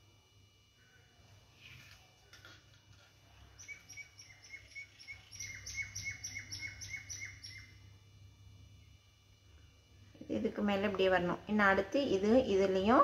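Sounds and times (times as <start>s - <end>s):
bird chirping: 3.5s - 7.8s.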